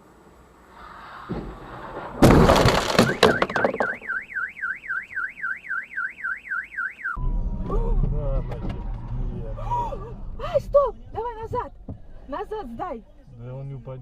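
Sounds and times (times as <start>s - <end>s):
vehicle crash impact: 0.9s - 4.3s
car alarm warbling: 2.8s - 7.4s.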